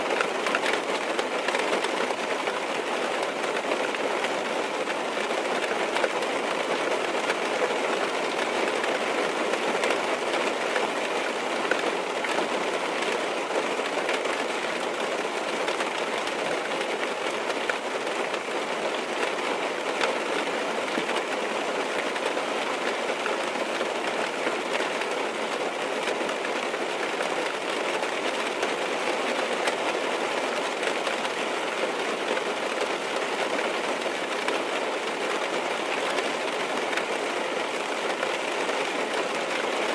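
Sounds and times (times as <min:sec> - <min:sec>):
rain on car roof and windows: 0:00.0 - 0:39.9.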